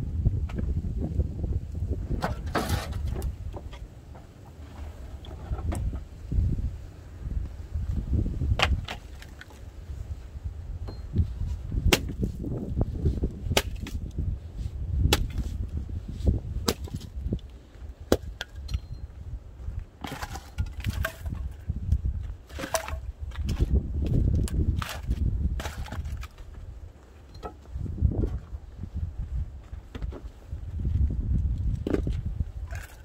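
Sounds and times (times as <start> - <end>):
wood cracking and knocking: 2.2 - 6.1, 8.5 - 9.6, 11.8 - 12.5, 13.6 - 14.1, 15.1 - 15.6, 16.6 - 17.4, 20.0 - 21.6, 22.5 - 26.6, 31.8 - 33.0.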